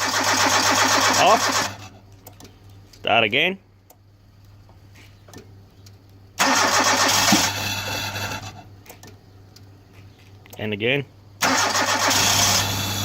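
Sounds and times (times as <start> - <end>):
car engine cranking and starting: 0.0 - 2.0, 6.4 - 9.1, 11.4 - 13.0.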